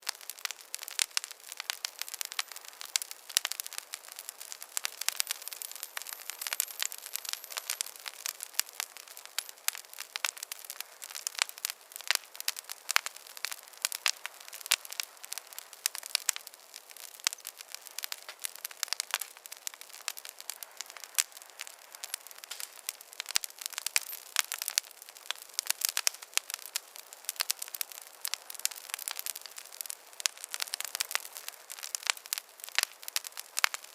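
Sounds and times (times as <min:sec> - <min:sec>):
wood fire crackling: 0:00.0 - 0:33.9.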